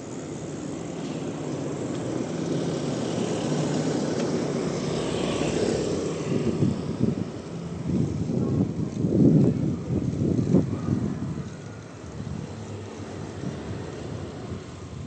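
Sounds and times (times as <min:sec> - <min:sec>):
engine drone: 0:00.0 - 0:15.0
wind gusting on microphone: 0:00.0 - 0:15.0.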